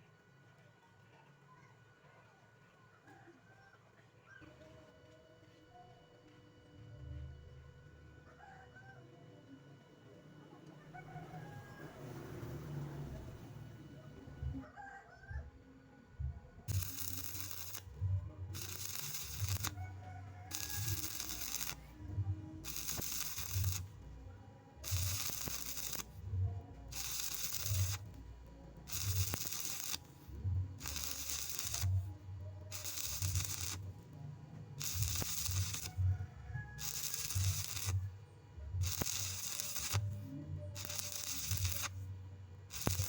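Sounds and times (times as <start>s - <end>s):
welding arc crackling: 16.7s - 34.1s, 34.7s - 43.0s.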